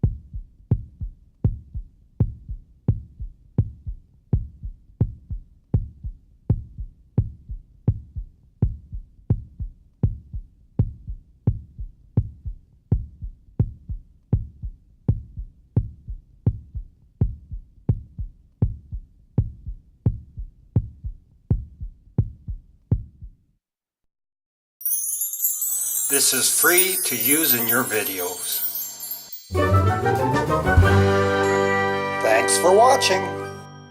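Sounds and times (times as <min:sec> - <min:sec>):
heartbeat: 0:00.0 - 0:23.4.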